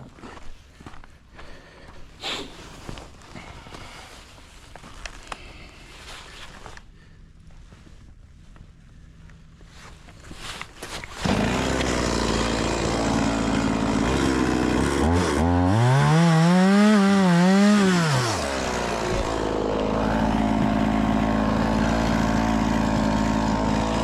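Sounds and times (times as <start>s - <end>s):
chainsaw starting and idling: 11.1s - 24.0s
chainsaw revving: 11.2s - 24.0s.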